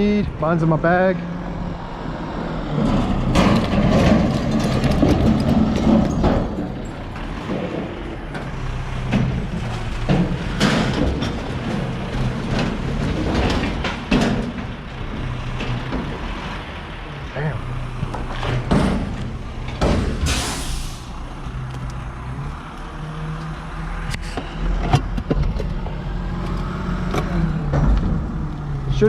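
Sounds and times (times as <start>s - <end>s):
garbage truck engine humming: 0.0s - 29.0s
clanks and knocks: 2.8s - 16.9s, 18.0s - 20.4s, 27.0s - 28.7s.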